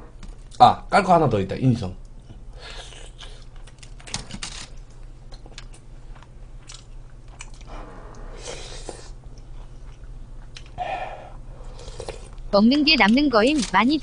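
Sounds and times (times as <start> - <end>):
person chewing food: 2.7 - 4.0, 5.3 - 7.7, 8.5 - 10.8, 11.6 - 12.4.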